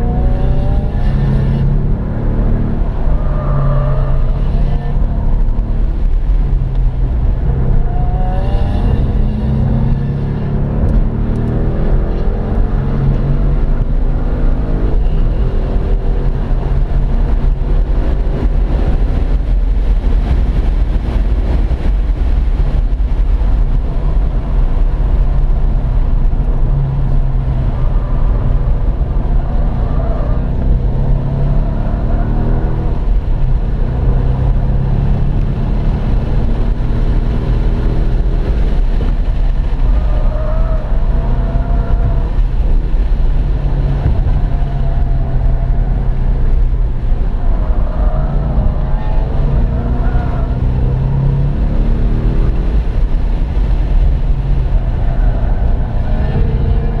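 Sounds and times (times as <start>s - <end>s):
car engine revving: 0.0s - 57.0s
road and wind rumble: 0.0s - 57.0s.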